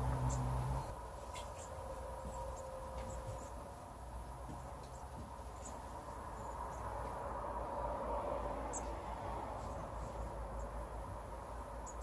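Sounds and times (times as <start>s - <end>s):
small birds chirping: 0.0s - 3.6s, 4.6s - 7.1s, 8.7s - 12.0s.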